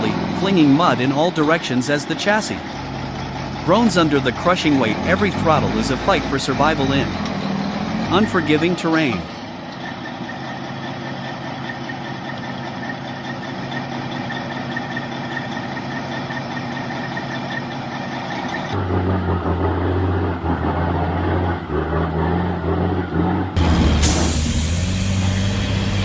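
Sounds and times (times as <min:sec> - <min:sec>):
diesel truck engine straining: 0:00.0 - 0:26.0.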